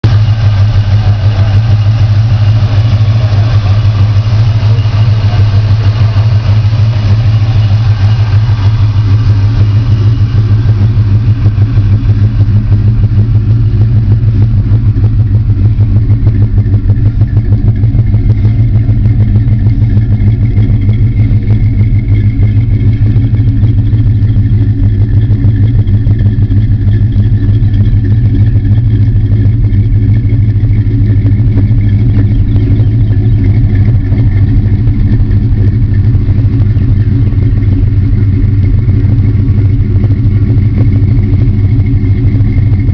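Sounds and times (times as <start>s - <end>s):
engine idling: 0.0s - 42.9s.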